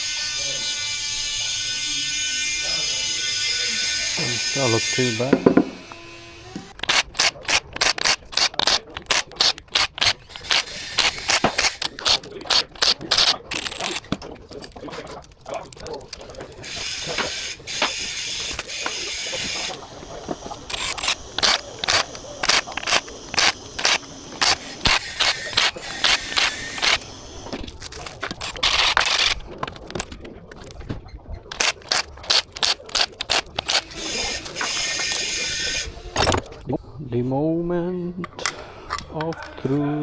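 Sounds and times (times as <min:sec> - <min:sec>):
mechanical whirring: 0:05.4 - 0:30.8, 0:31.5 - 0:36.6
ratchet wrench clicking: 0:06.7 - 0:17.6, 0:18.4 - 0:18.9, 0:20.7 - 0:27.1, 0:27.7 - 0:30.2, 0:31.5 - 0:35.3.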